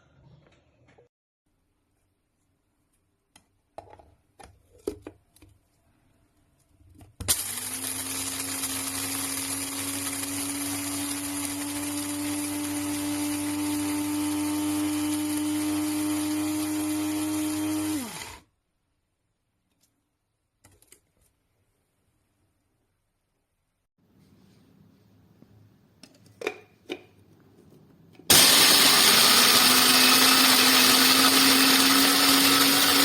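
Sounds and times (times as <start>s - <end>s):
coffee grinder whining: 7.3s - 18.5s, 28.3s - 33.0s.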